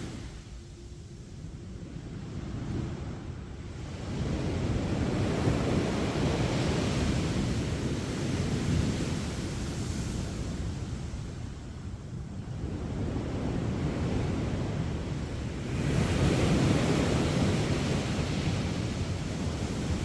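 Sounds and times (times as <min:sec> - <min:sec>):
surf breaking on a beach: 0:12.6 - 0:20.0.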